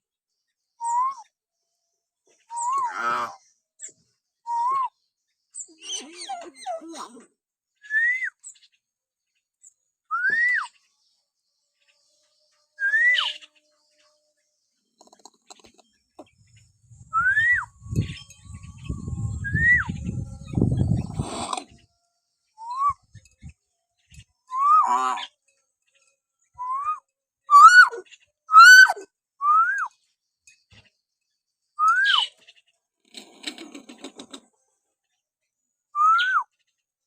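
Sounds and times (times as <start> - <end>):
bird whistling: 0.8 - 1.2, 2.5 - 3.0, 7.9 - 8.4, 10.1 - 10.7, 12.8 - 13.4, 17.1 - 21.4, 22.6 - 23.2, 24.5 - 24.9, 26.6 - 29.9, 31.8 - 32.3, 36.0 - 36.5
bird chattering calls: 27.5 - 29.0.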